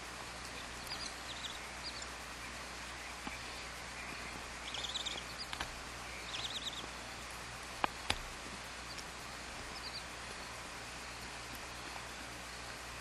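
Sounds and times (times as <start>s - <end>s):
steady hiss: 0.0s - 13.0s
bird twittering: 0.5s - 7.0s
sharp clicks: 7.8s - 8.3s.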